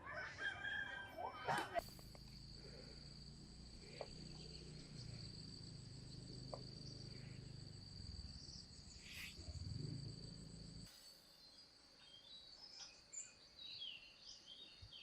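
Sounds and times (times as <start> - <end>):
low hum: 1.8 - 11.1.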